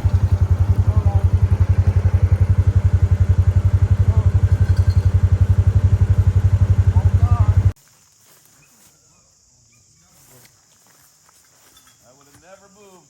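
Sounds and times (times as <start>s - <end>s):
small engine running: 0.0s - 7.8s.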